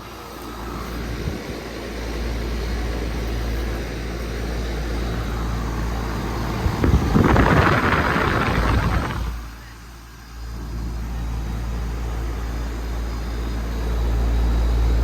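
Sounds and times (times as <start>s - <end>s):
air conditioner compressor humming: 0.0s - 15.0s
air conditioner fan: 0.0s - 15.0s
loud rushing noise: 6.0s - 9.5s.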